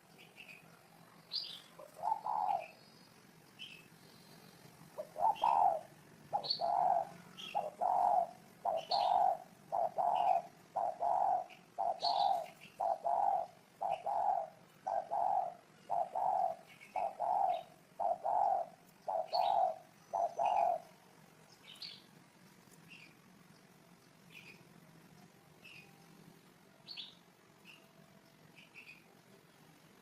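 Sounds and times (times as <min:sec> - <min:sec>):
small birds chirping faintly: 0:00.0 - 0:30.0
dove cooing: 0:01.5 - 0:02.8, 0:03.6 - 0:21.0.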